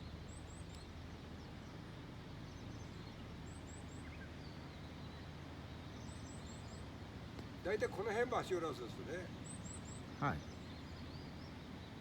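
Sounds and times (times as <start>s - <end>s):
small birds chirping: 9.2s - 12.0s.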